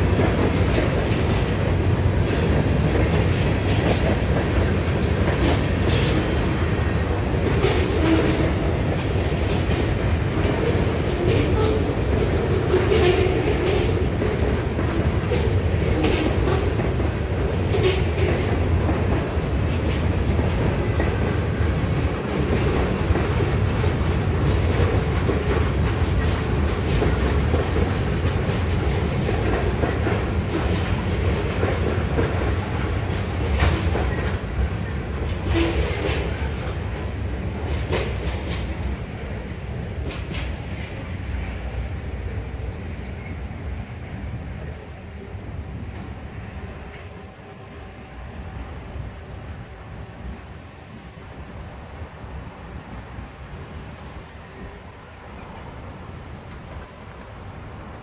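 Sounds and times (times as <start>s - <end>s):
wheels clacking over rail joints: 0.0s - 41.7s
freight train rumbling past: 0.0s - 58.0s.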